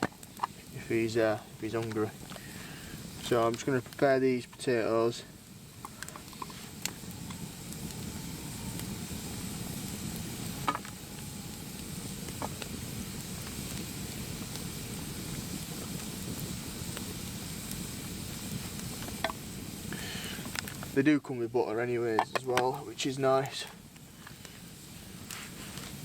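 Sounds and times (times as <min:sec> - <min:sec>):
sharp clicks and pops: 0:00.0 - 0:00.7, 0:01.7 - 0:04.7, 0:05.8 - 0:07.4, 0:10.6 - 0:11.0, 0:18.8 - 0:19.4, 0:20.4 - 0:21.0, 0:22.1 - 0:22.8
food sizzling in a pan: 0:00.0 - 0:21.0, 0:21.7 - 0:26.0.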